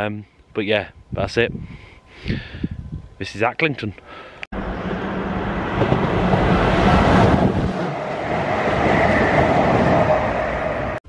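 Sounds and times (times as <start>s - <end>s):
train passing at speed: 4.6s - 11.0s.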